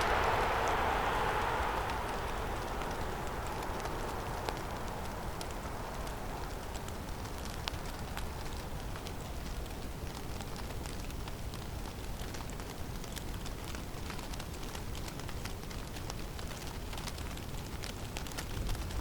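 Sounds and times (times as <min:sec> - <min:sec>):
wind rumbling: 0:00.0 - 0:11.5
falling snow pattering: 0:00.0 - 0:19.0.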